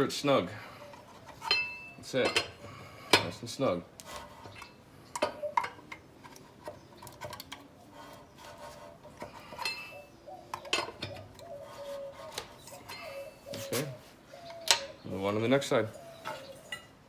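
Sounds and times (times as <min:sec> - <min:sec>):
hand tools and metal clinking: 0:00.5 - 0:17.0
faint steady tone: 0:00.6 - 0:03.3.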